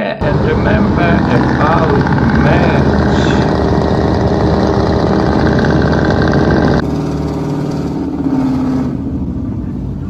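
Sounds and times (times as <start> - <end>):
quieter engine sound: 0.2 - 10.0
truck engine with loud exhaust: 0.2 - 10.0.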